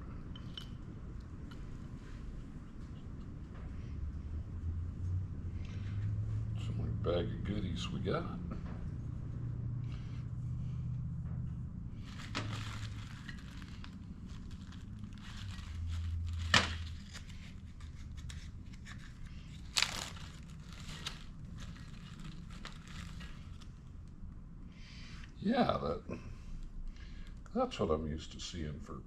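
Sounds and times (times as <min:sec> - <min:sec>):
small parts rattling: 0:12.0 - 0:23.7
plastic bag crinkling: 0:12.0 - 0:23.8.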